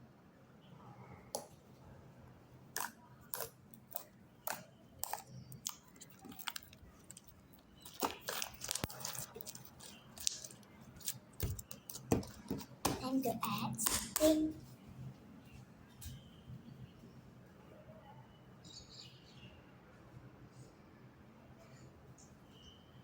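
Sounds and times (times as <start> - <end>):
slime sticky clicks and crackles: 2.8 - 12.7.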